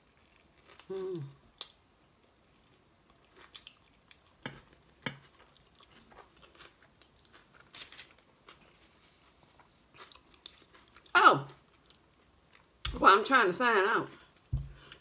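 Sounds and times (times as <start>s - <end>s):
biting and chewing burrito: 1.5s - 11.0s.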